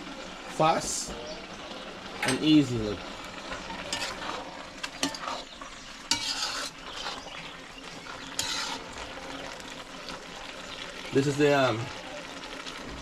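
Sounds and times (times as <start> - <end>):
vegetables sizzling in a pot: 0.0 - 13.0
spoon scraping a pot: 3.5 - 7.4, 8.2 - 8.9.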